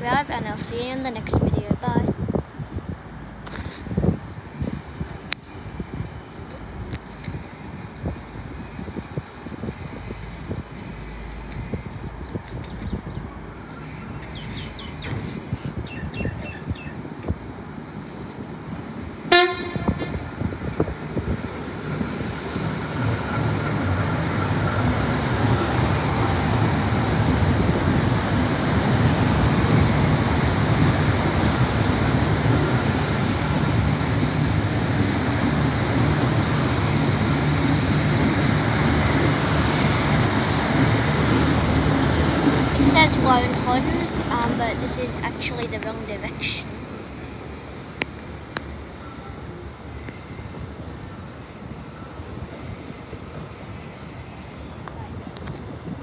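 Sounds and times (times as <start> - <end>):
passing train rumble: 0.0 - 56.0
train horn toot: 19.3 - 20.2
thin high whine: 36.7 - 46.6.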